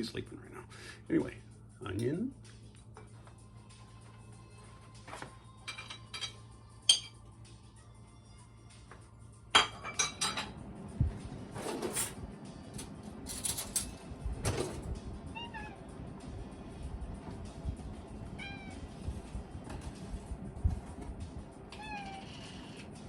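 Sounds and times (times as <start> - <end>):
kitchenware clattering: 5.7 - 7.2, 9.6 - 10.6
cat meowing: 15.3 - 15.9, 18.3 - 19.0, 21.7 - 22.8.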